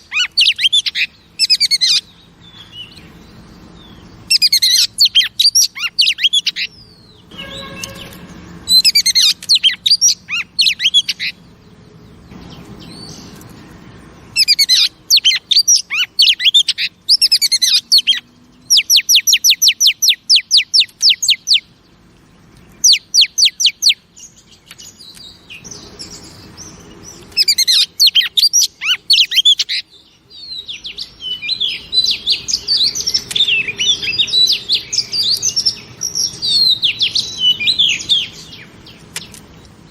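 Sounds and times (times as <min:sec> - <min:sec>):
repeated downslurred bird notes: 0:00.0 - 0:39.9
bird singing whistled phrases: 0:07.3 - 0:11.3, 0:14.4 - 0:21.7, 0:22.8 - 0:24.0, 0:27.3 - 0:38.6.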